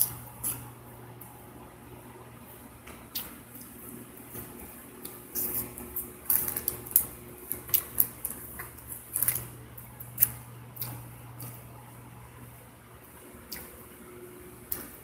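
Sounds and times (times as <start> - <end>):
steady low hum: 0.0 - 15.0
person chewing crunchy food: 3.1 - 11.7.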